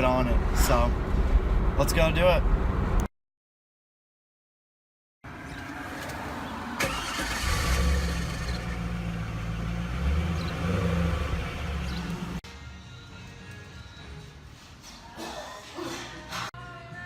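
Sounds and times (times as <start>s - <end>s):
car engine starting and idling: 5.5s - 12.4s.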